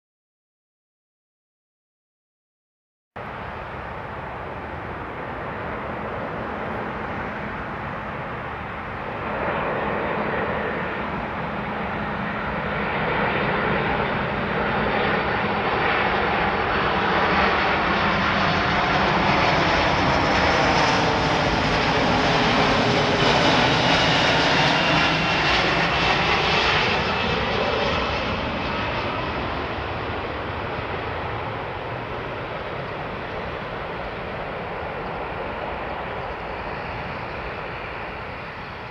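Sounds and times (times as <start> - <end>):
high engine whine: 3.2 - 38.9
jet aircraft passing by: 3.2 - 38.9.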